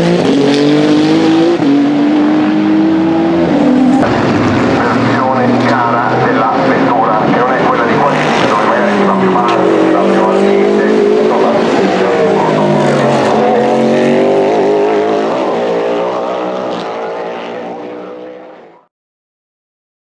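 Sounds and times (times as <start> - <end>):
racing car engines: 0.0 - 18.9.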